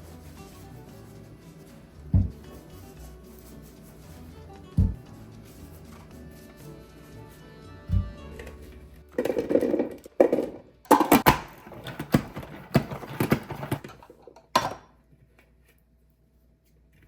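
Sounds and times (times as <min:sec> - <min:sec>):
rustling: 0:00.0 - 0:07.4
plastic containers knocking and clacking: 0:08.4 - 0:14.9.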